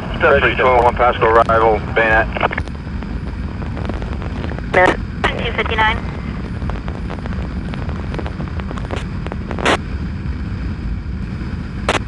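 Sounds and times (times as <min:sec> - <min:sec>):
scanner radio static: 0:00.0 - 0:09.8
wind rumble on microphone: 0:00.0 - 0:12.0
motorcycle running: 0:05.9 - 0:12.0.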